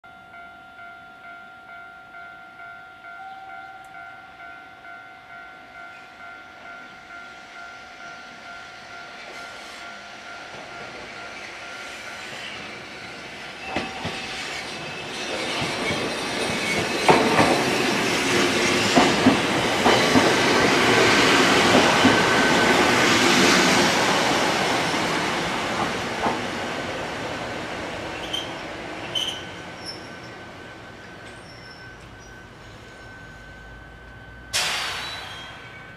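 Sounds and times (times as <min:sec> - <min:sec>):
level crossing warning bell: 0:00.0 - 0:15.8, 0:29.2 - 0:34.6
train brakes squealing: 0:07.2 - 0:23.9, 0:28.1 - 0:35.9
train wheels clacking over rails: 0:10.4 - 0:27.4, 0:34.5 - 0:35.8.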